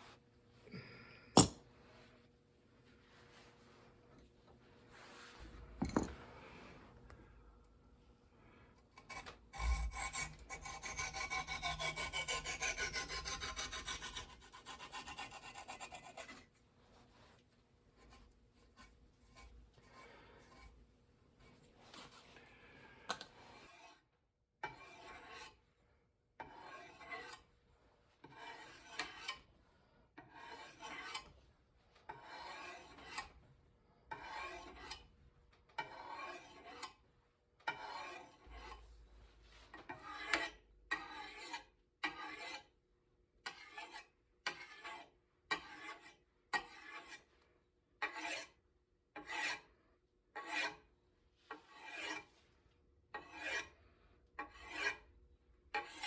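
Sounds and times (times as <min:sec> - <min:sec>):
file rasping back and forth: 0:08.8 - 0:16.5, 0:23.4 - 0:24.0, 0:24.6 - 0:25.6, 0:26.4 - 0:27.5, 0:28.2 - 0:29.5, 0:30.2 - 0:31.3, 0:32.1 - 0:33.4, 0:34.1 - 0:35.1, 0:35.8 - 0:37.0, 0:37.7 - 0:38.8, 0:39.8 - 0:42.7, 0:43.4 - 0:47.3, 0:48.0 - 0:48.6, 0:49.2 - 0:49.7, 0:50.4 - 0:50.9, 0:51.5 - 0:52.3, 0:53.1 - 0:55.1, 0:55.7 - 0:56.0.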